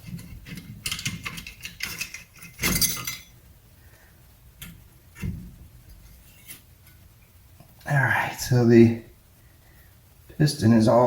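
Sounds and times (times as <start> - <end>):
metal brake parts clinking: 0.5 - 3.3
metal scrape: 5.2 - 6.7.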